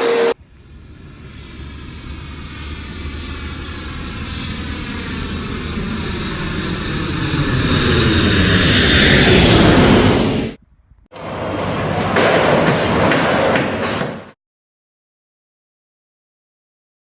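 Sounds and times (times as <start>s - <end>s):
aircraft flying overhead: 0.0s - 12.0s.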